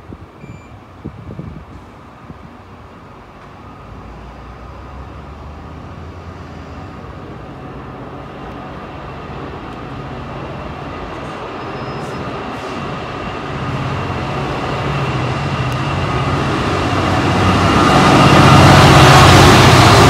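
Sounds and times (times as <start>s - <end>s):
train approaching: 1.6s - 20.0s.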